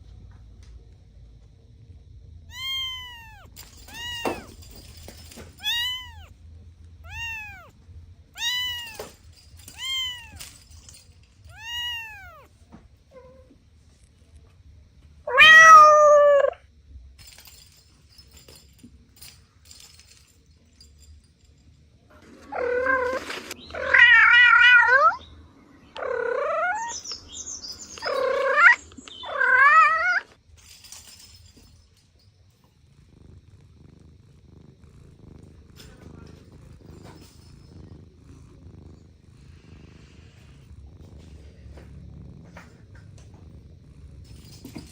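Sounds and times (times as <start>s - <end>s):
kitten meowing: 2.5s - 4.5s, 5.6s - 6.3s, 7.0s - 7.7s, 8.4s - 9.1s, 9.7s - 10.4s, 11.5s - 12.5s, 15.3s - 16.5s.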